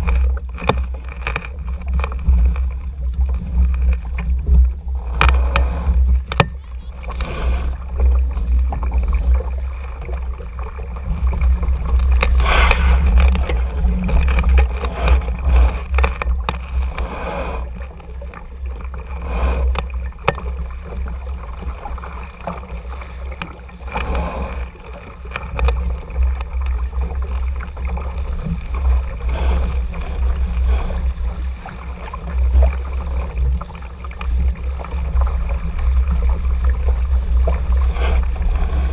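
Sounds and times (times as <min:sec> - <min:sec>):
water splashing against hull: 0:00.0 - 0:38.9
wind rumbling on microphone: 0:00.0 - 0:38.9.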